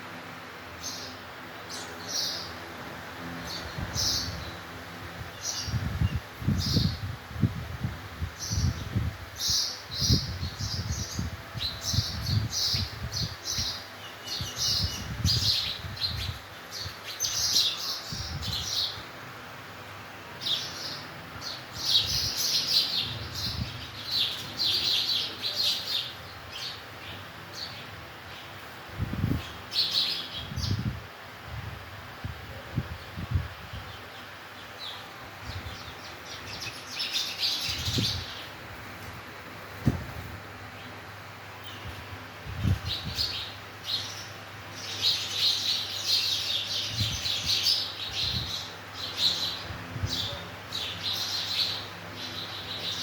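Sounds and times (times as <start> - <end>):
sparrows chirping: 0.0 - 53.0.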